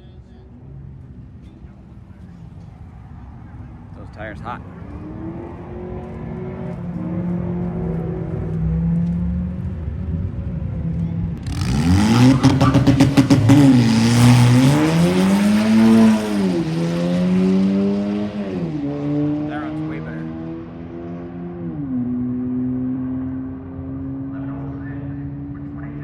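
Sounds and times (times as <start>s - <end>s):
car accelerating with gear shifts: 4.0s - 25.9s
engine crackling burst: 11.4s - 17.7s
turbocharged car engine revving: 11.4s - 26.0s.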